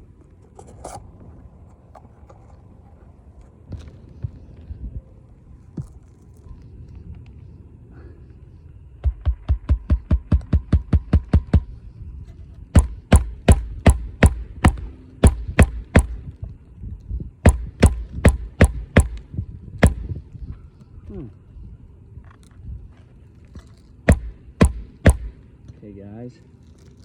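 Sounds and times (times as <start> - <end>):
hammer driving nails into shingle: 9.0 - 11.7, 12.7 - 16.2, 17.4 - 20.2, 24.1 - 25.4.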